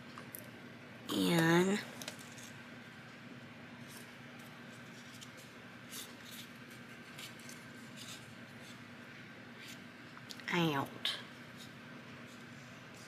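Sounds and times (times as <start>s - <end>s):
low steady hum: 0.0s - 13.0s
paper rustling and crinkling: 2.0s - 2.6s, 3.8s - 8.8s.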